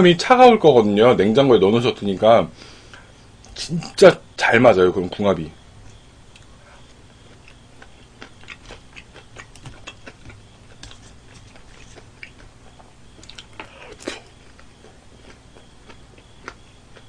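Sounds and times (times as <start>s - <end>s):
chewing fried chicken: 5.8s - 17.0s.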